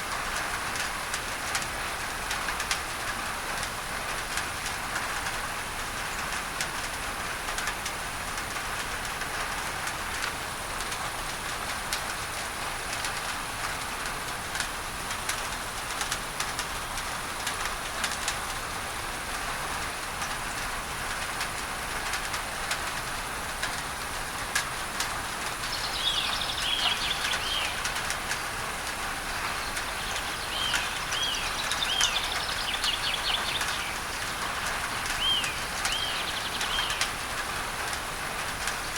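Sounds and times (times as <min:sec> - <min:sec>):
rain on a tin roof: 0:00.0 - 0:38.9
bird chirping: 0:25.6 - 0:28.6, 0:29.2 - 0:37.2.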